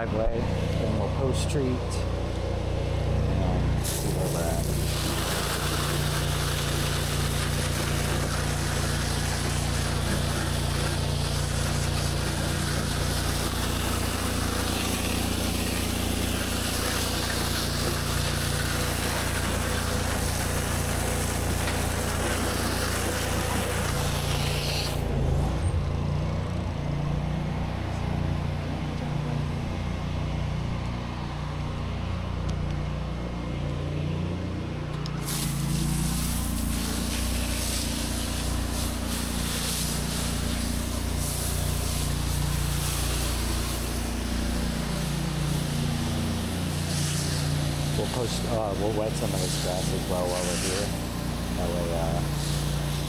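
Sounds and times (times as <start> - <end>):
pressure washer engine running: 0.0 - 53.0
water spraying onto concrete: 3.0 - 26.2, 34.9 - 53.0.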